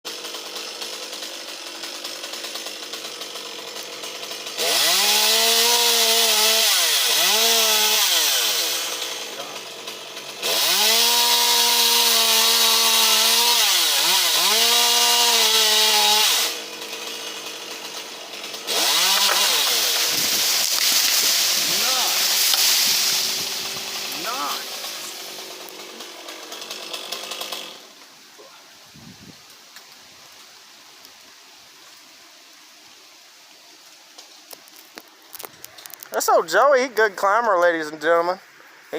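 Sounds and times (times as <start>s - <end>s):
chainsaw revving: 0.1s - 28.0s.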